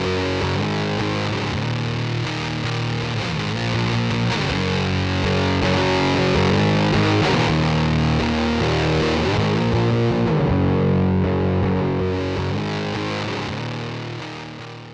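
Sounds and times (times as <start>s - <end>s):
distorted electric guitar chords: 0.0s - 14.9s.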